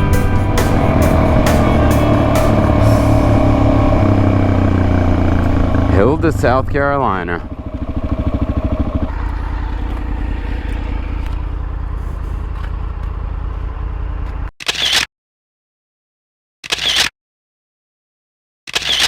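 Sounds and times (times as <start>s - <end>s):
motorcycle engine running: 0.0s - 14.5s.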